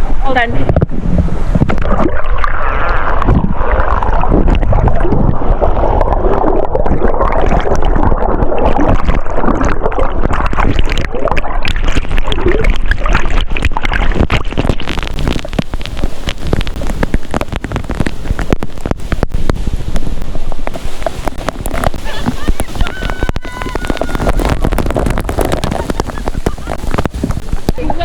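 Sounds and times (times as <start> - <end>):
water splashing on microphone: 0.0 - 28.0
waterfall rushing: 14.1 - 28.0.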